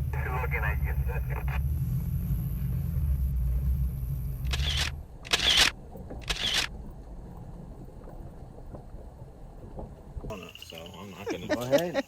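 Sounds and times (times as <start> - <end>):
vehicle engine idling: 0.0 - 8.0.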